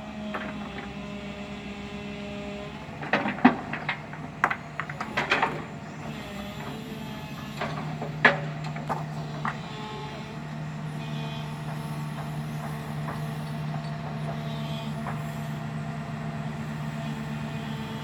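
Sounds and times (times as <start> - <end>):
diesel engine running: 0.0 - 18.0
metallic clanks and knocks: 3.0 - 5.8.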